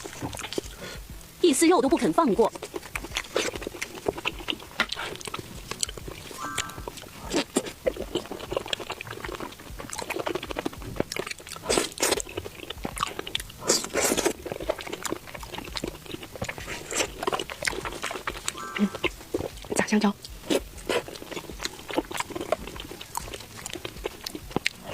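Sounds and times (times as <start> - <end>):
chewing and crunching fried food: 0.0 - 24.9.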